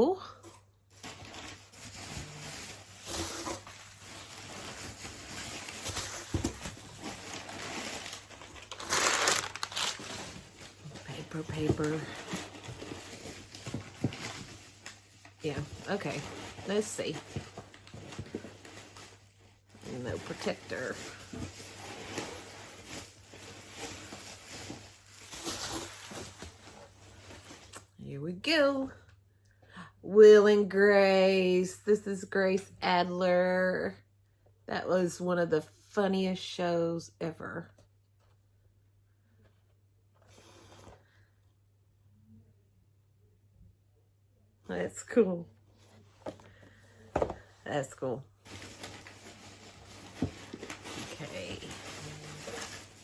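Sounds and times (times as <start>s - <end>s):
paper crinkling: 0.9s - 27.8s, 48.4s - 53.0s.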